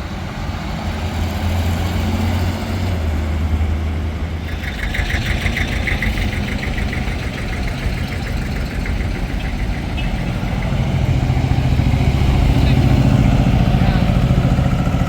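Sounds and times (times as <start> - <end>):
vehicle engine idling: 4.1 - 15.0.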